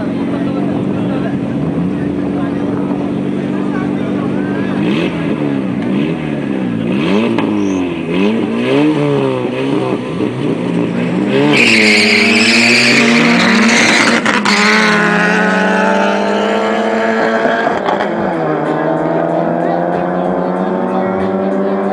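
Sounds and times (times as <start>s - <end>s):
car engine revving: 0.0s - 21.9s
tyres squealing: 11.3s - 14.7s.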